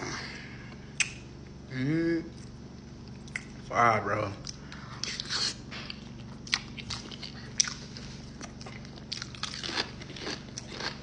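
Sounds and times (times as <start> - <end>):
person chewing food: 4.4 - 11.0.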